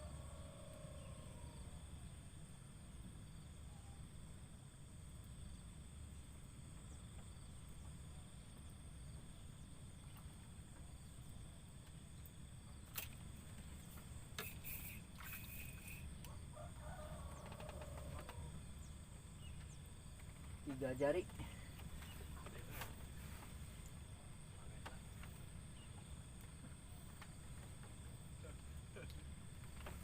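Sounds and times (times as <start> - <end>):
high insect drone: 0.0 - 30.0
short chirps: 14.4 - 16.1.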